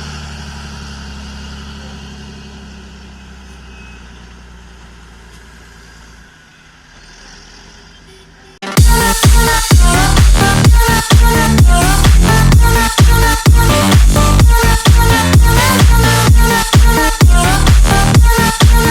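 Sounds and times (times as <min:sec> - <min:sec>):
tractor diesel engine idling: 0:00.0 - 0:08.1
loud electronic dance music: 0:08.6 - 0:18.9.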